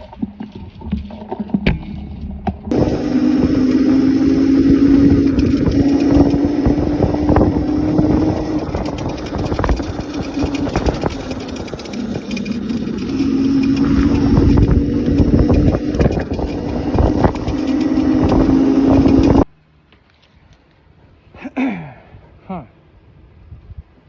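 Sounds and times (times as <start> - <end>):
wind and road noise: 0.0 - 21.2
electric motor whine: 2.7 - 19.5.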